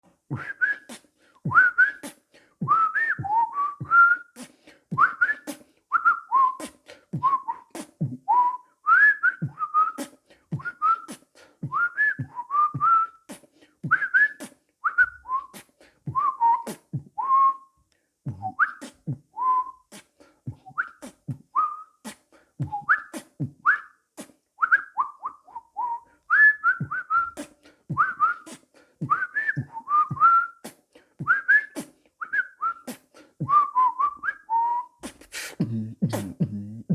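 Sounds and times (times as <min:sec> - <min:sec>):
beatboxed rhythm: 0:00.0 - 0:05.7, 0:06.6 - 0:08.3, 0:09.4 - 0:17.2, 0:18.3 - 0:23.6, 0:24.2 - 0:24.4, 0:26.8 - 0:32.0, 0:32.8 - 0:34.3, 0:35.0 - 0:36.9
person whistling bird-like chirps: 0:00.3 - 0:04.4, 0:05.0 - 0:13.2, 0:13.9 - 0:17.7, 0:18.3 - 0:24.0, 0:24.6 - 0:36.4.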